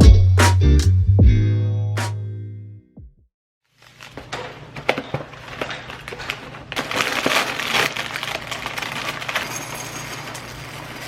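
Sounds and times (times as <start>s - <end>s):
rustling and crinkling: 3.7s - 11.0s.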